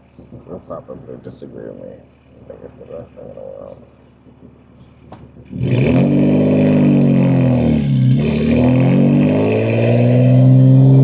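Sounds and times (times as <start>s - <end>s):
car engine accelerating hard: 5.4s - 11.0s.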